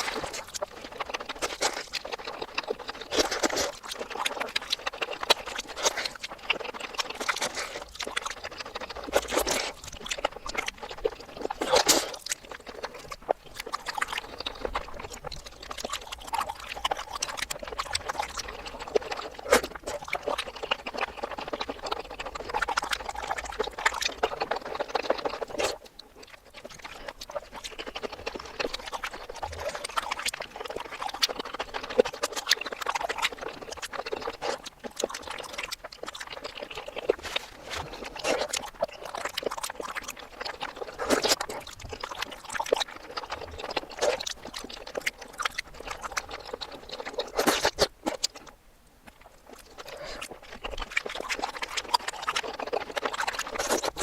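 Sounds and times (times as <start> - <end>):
reversed chewing and smacking sounds: 0.0 - 54.0.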